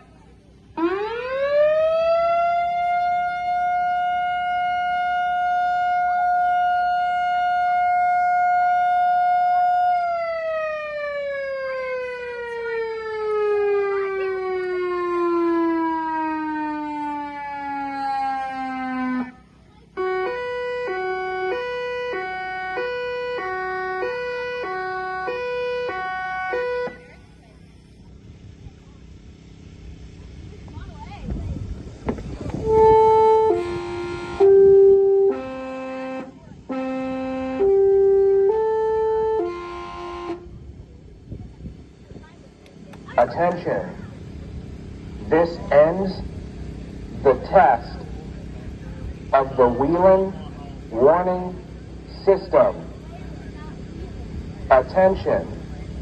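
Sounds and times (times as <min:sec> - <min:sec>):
warning siren steady tone: 0:00.1 - 0:30.2, 0:32.1 - 0:42.2, 0:43.1 - 0:56.0
two-tone hi-lo siren: 0:00.8 - 0:27.8, 0:32.5 - 0:40.8, 0:49.2 - 0:53.0, 0:54.6 - 0:55.8.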